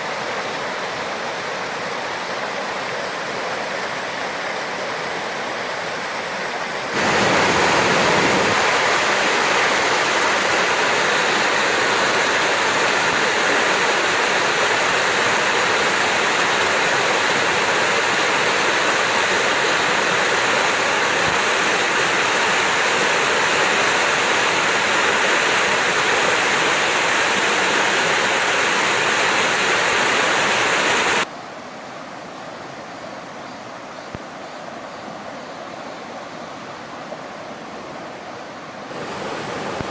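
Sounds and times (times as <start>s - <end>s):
stream rushing: 0.0s - 31.3s, 34.6s - 39.9s.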